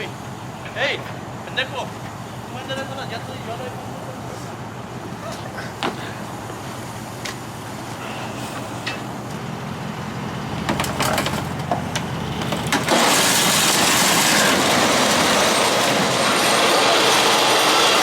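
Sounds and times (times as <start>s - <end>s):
heavy machinery running: 6.3s - 18.0s
loud grinding rush: 10.2s - 18.0s
metal clanks and knocks: 10.6s - 13.0s.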